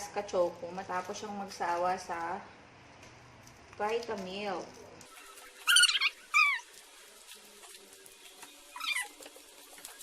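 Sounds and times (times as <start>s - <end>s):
high-pitched falling cries: 5.3s - 6.7s, 8.7s - 9.2s.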